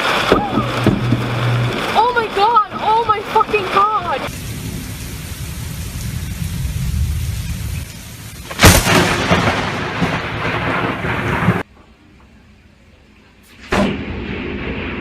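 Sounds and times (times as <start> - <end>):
loud thunder rumbling: 0.0 - 11.7, 13.6 - 15.0
sharp thunderclap: 0.0 - 11.7, 13.6 - 15.0
rain: 0.0 - 15.0.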